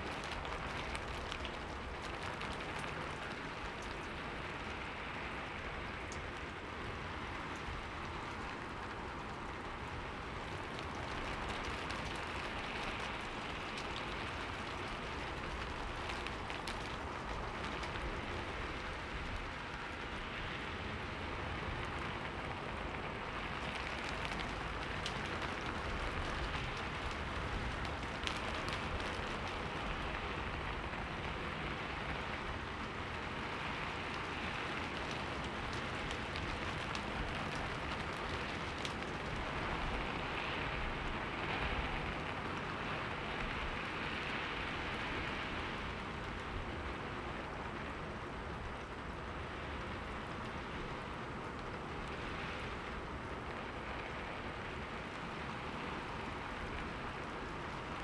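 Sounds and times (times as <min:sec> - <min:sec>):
rain on a window: 0:00.0 - 0:58.0.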